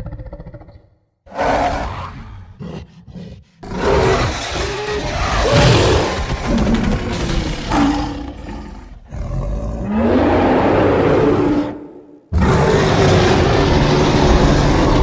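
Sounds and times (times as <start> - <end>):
monster roaring: 3.6 - 15.0.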